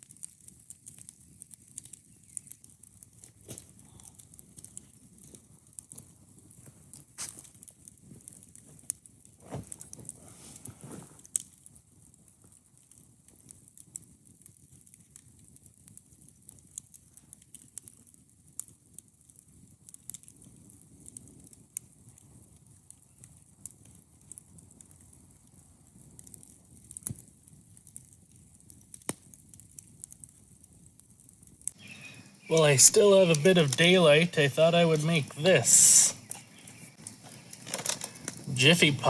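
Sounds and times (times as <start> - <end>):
campfire crackling and popping: 0.0 - 39.0
fire hissing: 1.5 - 11.6, 31.7 - 39.0.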